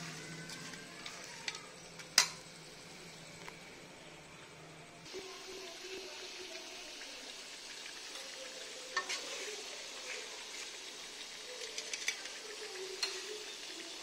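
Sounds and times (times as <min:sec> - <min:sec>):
chicken sizzling in hot oil: 0:05.0 - 0:14.0
metal skimmer scraping a pan: 0:08.9 - 0:10.7.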